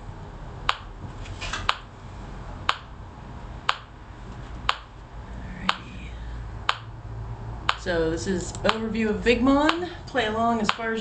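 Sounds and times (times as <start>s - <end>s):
metronome clicking: 0.7s - 0.9s, 2.7s - 2.9s, 3.7s - 3.9s, 4.7s - 4.9s, 6.7s - 6.9s.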